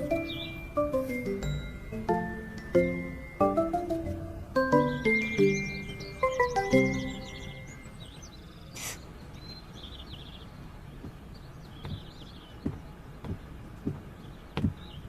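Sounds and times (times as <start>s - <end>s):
birds chirping: 0.0s - 15.0s
slow footsteps: 11.0s - 15.0s.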